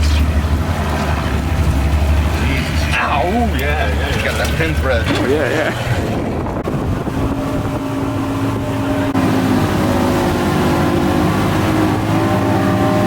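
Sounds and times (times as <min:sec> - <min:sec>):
boat motor running: 0:00.0 - 0:13.0
water noise: 0:00.0 - 0:13.0
wind: 0:00.0 - 0:13.0.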